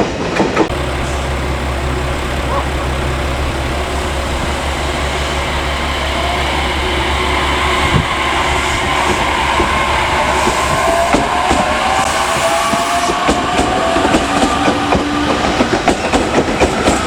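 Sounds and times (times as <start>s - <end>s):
train rumbling past: 0.0s - 17.0s
faint rising whine: 0.7s - 11.1s.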